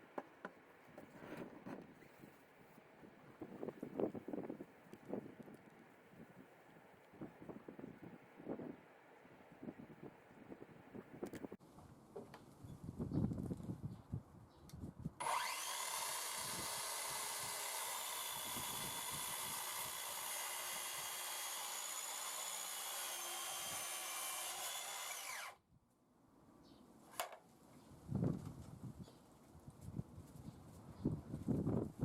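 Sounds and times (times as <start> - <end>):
circular saw whining: 15.2 - 25.6.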